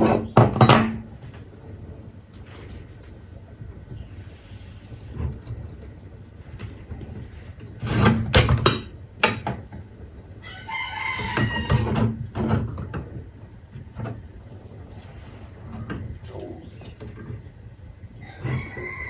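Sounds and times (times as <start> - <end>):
workshop tapping knocks: 0.0 - 1.2, 7.8 - 9.8
rooster crowing: 10.4 - 12.1, 18.2 - 19.0.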